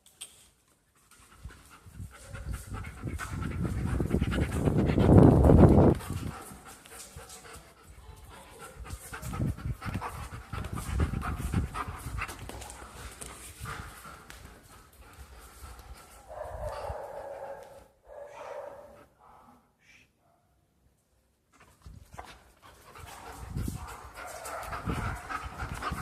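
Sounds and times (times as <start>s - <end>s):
dog panting heavily: 1.0s - 17.0s, 21.6s - 26.0s.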